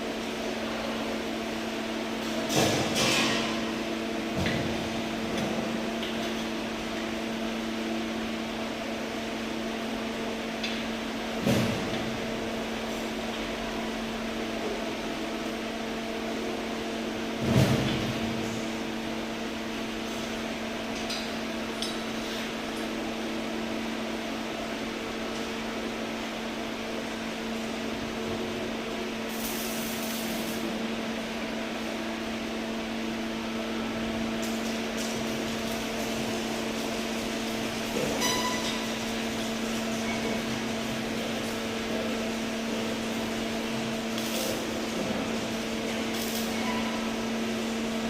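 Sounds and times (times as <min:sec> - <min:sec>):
welding machine electrical hum: 0:00.0 - 0:48.0
welding arc hissing: 0:29.3 - 0:30.7, 0:43.2 - 0:45.0, 0:45.8 - 0:46.6.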